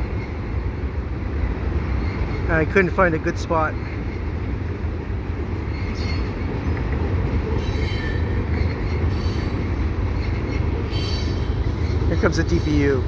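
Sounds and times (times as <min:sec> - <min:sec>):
high wheel squeals: 0:07.6 - 0:12.0.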